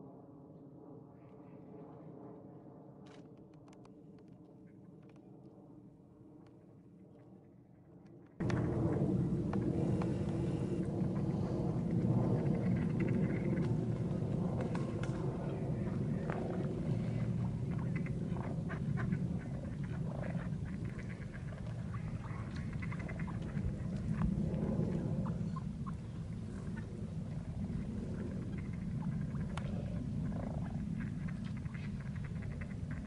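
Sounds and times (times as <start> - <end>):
steady low rush: 8.4 - 33.0.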